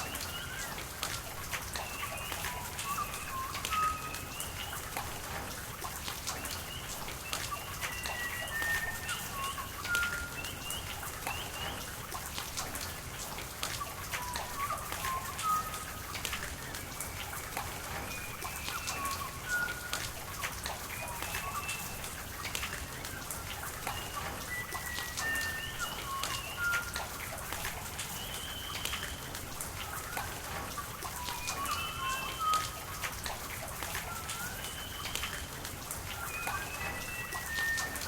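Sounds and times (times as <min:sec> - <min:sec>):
rain hissing: 0:00.0 - 0:38.0
sharp taps of raindrops: 0:00.0 - 0:38.0
high chirp-like tones: 0:31.1 - 0:35.5, 0:36.1 - 0:38.0.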